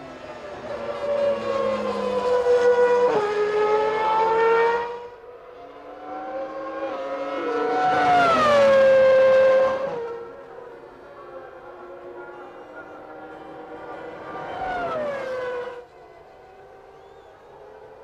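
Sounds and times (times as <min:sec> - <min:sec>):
racing car engines at high revs: 0:00.0 - 0:18.0.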